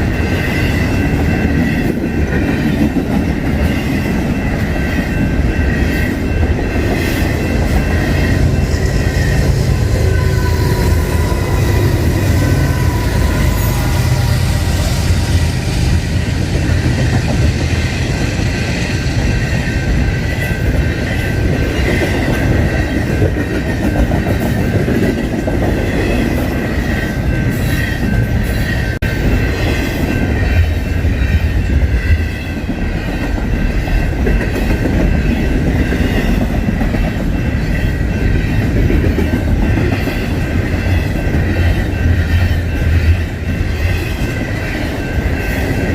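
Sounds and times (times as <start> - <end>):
freight train rumbling past: 0.0 - 45.9
high wheel squeal: 4.8 - 16.1.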